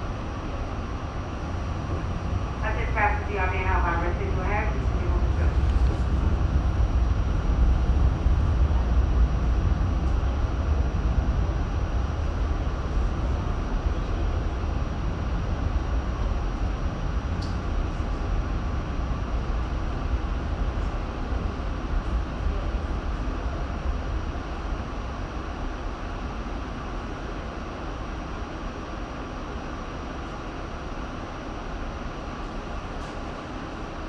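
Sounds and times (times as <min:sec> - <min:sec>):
subway train rumbling: 0:00.0 - 0:34.0.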